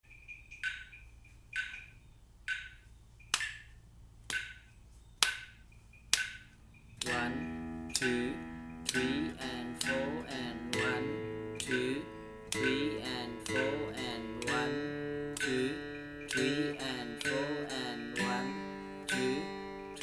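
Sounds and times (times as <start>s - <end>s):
metronome clicking: 0.1s - 20.0s
guitar strings plucked: 7.0s - 20.0s.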